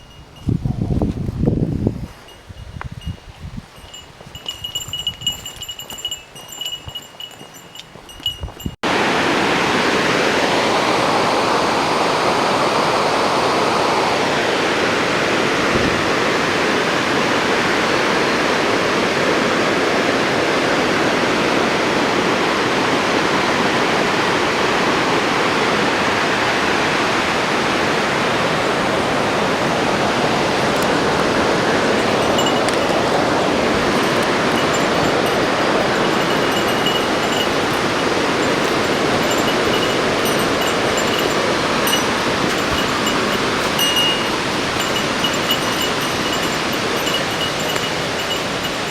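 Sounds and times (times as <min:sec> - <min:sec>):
waterfall rushing: 0:08.9 - 0:48.9
faint high steady tones: 0:32.0 - 0:48.8.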